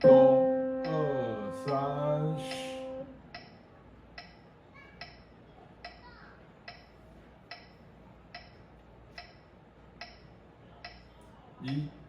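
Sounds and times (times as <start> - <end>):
metronome ticking: 0.0 - 3.6.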